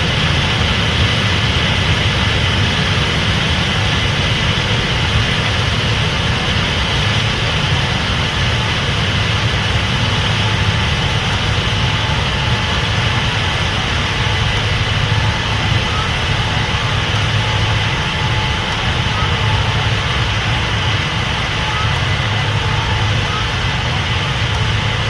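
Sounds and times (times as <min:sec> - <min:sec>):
combine harvester engine drone: 0:00.0 - 0:25.0
faint steady whines: 0:00.0 - 0:25.0
steady hiss: 0:00.0 - 0:25.0.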